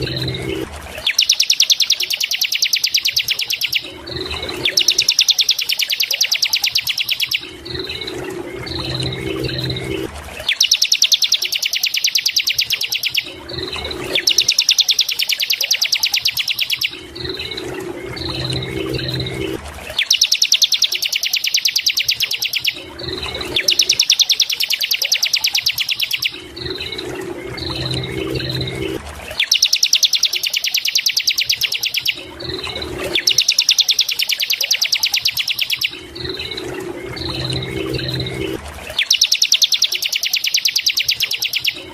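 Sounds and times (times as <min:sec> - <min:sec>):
low hum: 0:00.0 - 0:01.1, 0:07.4 - 0:10.5, 0:16.9 - 0:20.0, 0:26.2 - 0:29.4, 0:35.9 - 0:39.0
bird trilling: 0:00.0 - 0:41.9.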